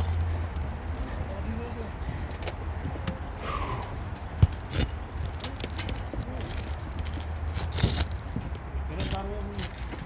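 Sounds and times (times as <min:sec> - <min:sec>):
pry bar scraping shingles: 0:04.5 - 0:10.0.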